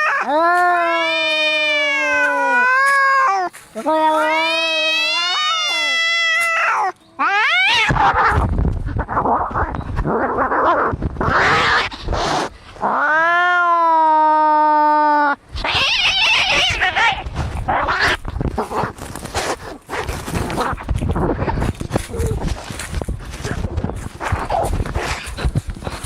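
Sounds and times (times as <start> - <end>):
cat yowling: 0.0 - 8.4, 12.8 - 18.2
cats hissing and screeching: 0.0 - 26.0.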